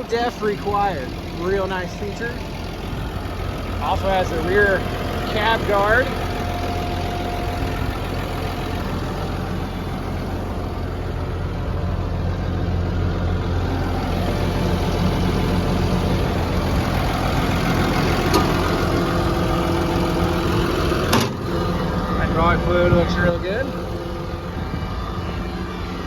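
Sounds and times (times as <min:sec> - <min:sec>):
bulldozer diesel engine idling: 0:00.0 - 0:26.0.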